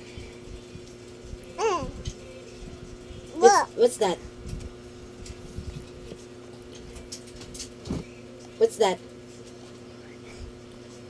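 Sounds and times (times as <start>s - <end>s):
child babbling: 1.6s - 2.0s, 3.4s - 3.8s.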